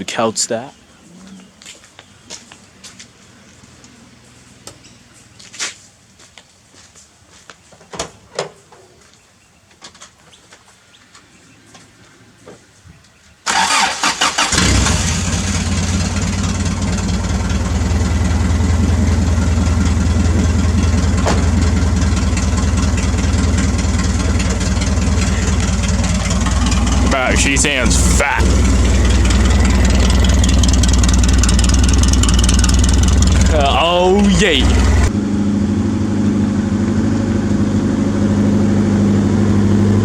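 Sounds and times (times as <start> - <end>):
engine cranking and starting: 13.5 - 35.2
engine idling loudly: 14.5 - 40.0.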